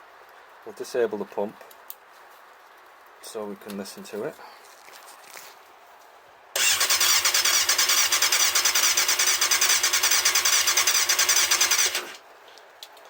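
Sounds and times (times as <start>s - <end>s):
motorcycle electric starter cranking: 6.6s - 12.2s.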